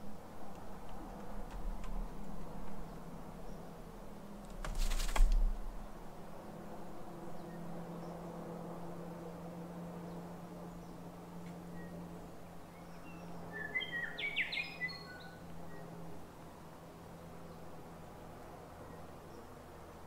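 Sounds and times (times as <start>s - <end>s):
low background hum: 0.0s - 20.0s
songbird chirping and whistling: 13.5s - 15.3s.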